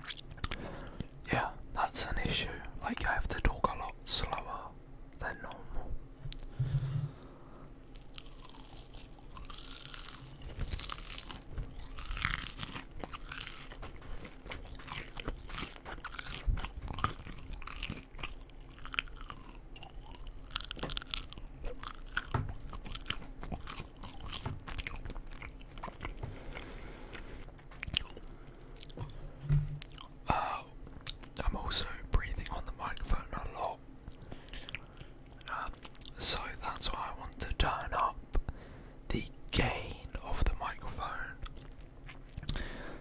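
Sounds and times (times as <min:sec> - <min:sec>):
person chewing crunchy food: 0:00.0 - 0:01.2, 0:07.2 - 0:36.5, 0:41.3 - 0:43.0.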